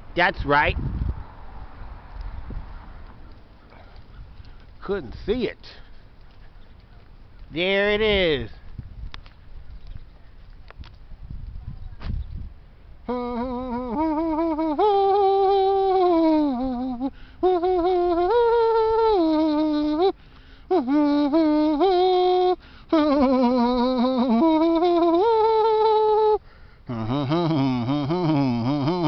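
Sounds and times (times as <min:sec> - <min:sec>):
person humming a tune: 0:13.1 - 0:29.0.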